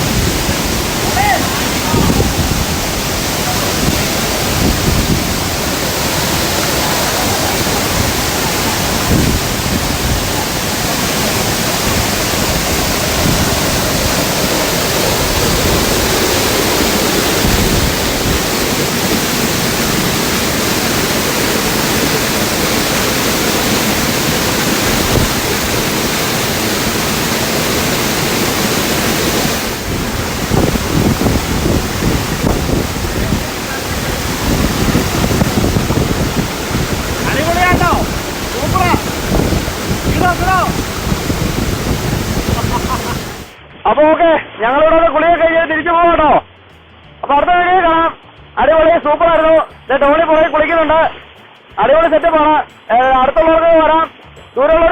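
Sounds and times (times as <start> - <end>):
waterfall rushing: 0.0 - 43.6.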